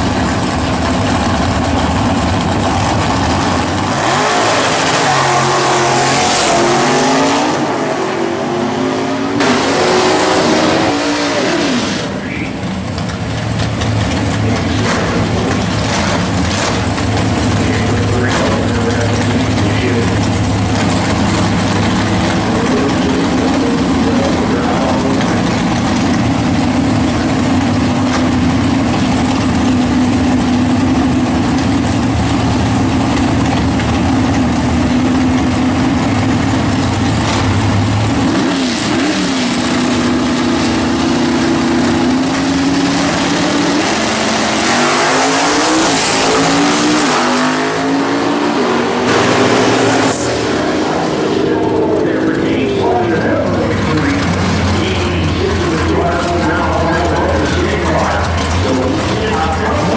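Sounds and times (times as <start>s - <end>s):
muscle car engines idling: 0.0s - 4.2s, 12.0s - 38.4s, 39.0s - 44.6s, 50.0s - 59.9s
cars accelerating through gears: 3.0s - 12.5s, 13.7s - 32.0s, 33.4s - 59.9s.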